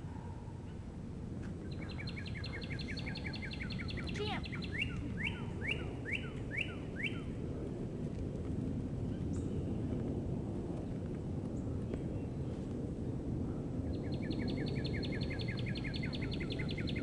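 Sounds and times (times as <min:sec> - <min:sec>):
low background rumble: 0:00.0 - 0:17.0
songbird singing: 0:00.1 - 0:07.4, 0:13.8 - 0:17.0.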